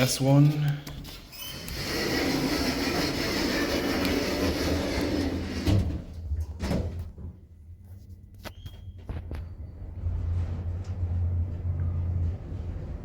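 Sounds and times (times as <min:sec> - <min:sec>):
lift doors closing with rumble: 0:01.3 - 0:07.2, 0:09.2 - 0:13.0
low hum: 0:09.1 - 0:13.0.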